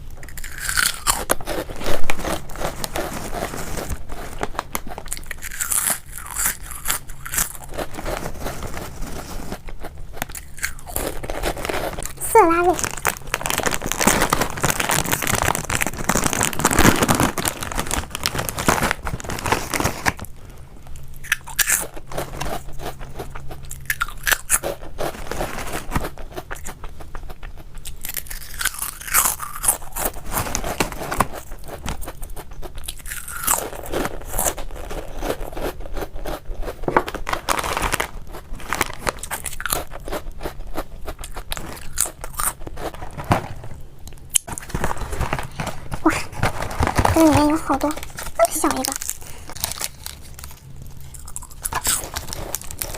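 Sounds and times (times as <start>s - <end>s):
crispy snack crunching: 0.0s - 52.9s.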